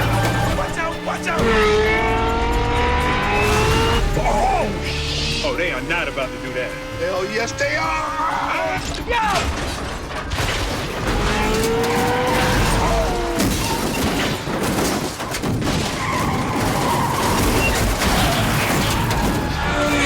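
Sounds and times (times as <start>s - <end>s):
car crashes and impacts: 0.0s - 1.8s, 3.4s - 4.5s, 8.6s - 20.0s
car tyres squealing and skidding: 0.0s - 9.8s, 10.8s - 14.4s, 15.8s - 20.0s
car engines running: 0.0s - 20.0s.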